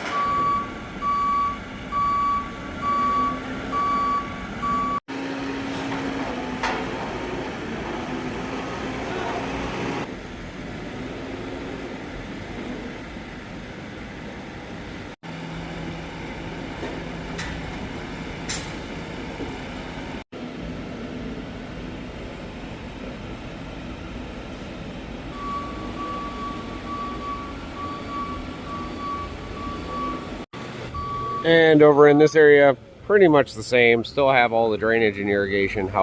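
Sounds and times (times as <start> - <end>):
reversing alarm beeping: 0.0 - 5.0, 25.3 - 32.3
construction machinery hum: 0.0 - 36.0.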